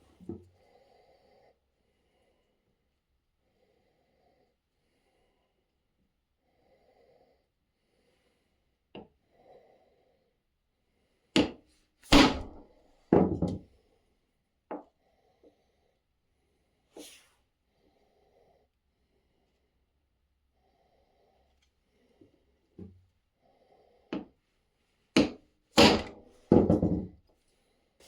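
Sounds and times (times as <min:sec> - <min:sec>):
knocks and thuds on wood: 0:11.4 - 0:12.6, 0:13.2 - 0:13.6, 0:25.2 - 0:27.2.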